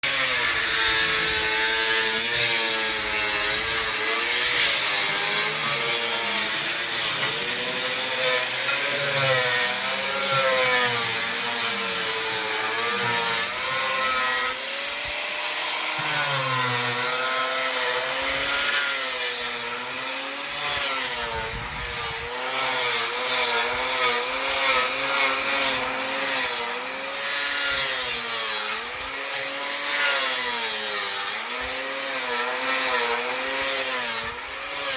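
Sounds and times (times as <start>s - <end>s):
power sander motor whine: 0.0s - 34.9s
sander rasping on wood: 0.0s - 34.9s.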